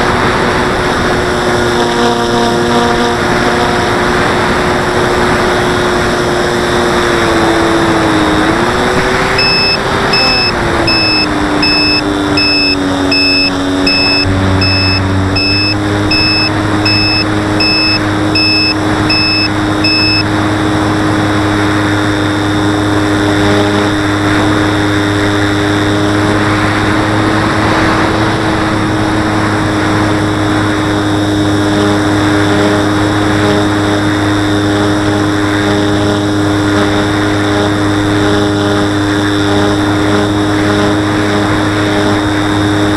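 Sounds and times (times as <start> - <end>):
model aeroplane motor whine: 0.0 - 42.9
low vibrating buzz: 8.7 - 26.4.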